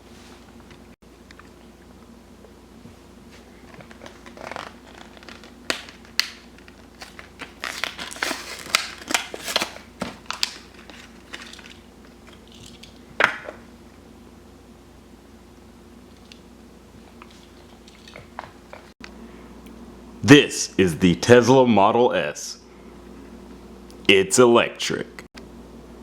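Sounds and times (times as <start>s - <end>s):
plastic packaging crinkling: 3.5s - 13.0s.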